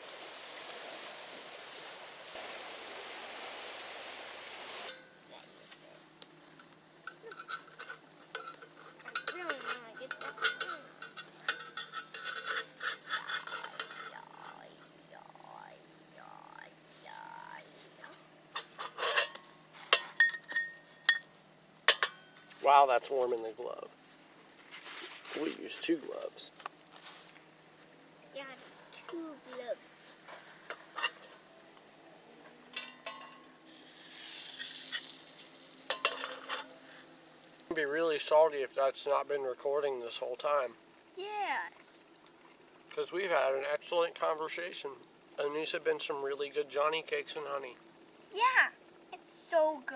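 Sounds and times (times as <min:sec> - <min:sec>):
food sizzling in oil: 0:00.0 - 0:05.3, 0:32.9 - 0:37.7
metal utensil scraping in a pan: 0:06.6 - 0:14.6, 0:18.6 - 0:21.2, 0:30.7 - 0:31.4, 0:32.8 - 0:37.1
bird calling: 0:13.1 - 0:18.2.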